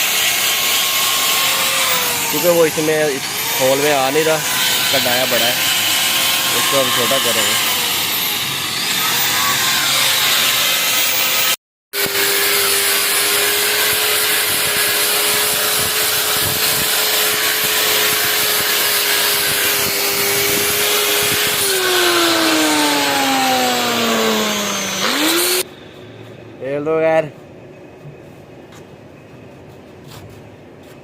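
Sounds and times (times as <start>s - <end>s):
angle grinder grinding steel: 0.0s - 25.7s.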